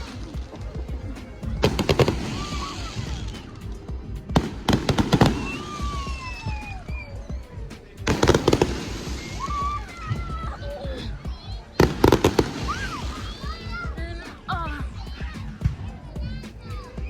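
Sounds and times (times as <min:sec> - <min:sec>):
fireworks crackling: 0:00.0 - 0:17.0
gliding whistle tones: 0:05.1 - 0:14.4.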